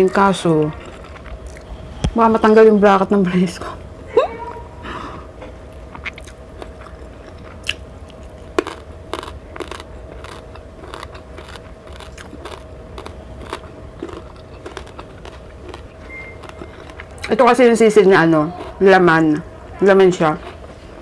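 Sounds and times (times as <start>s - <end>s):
person chewing crunchy food: 0.5s - 1.8s, 5.7s - 17.4s, 18.4s - 18.8s.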